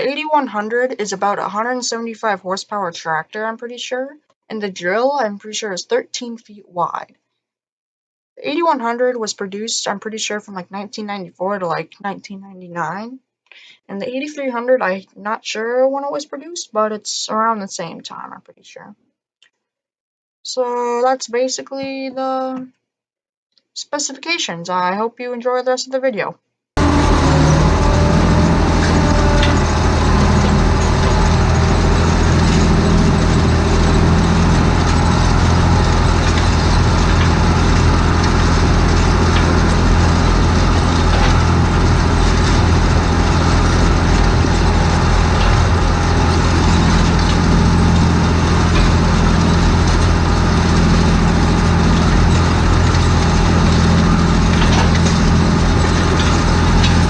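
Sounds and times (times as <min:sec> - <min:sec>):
tractor diesel engine running: 0:26.8 - 0:57.0.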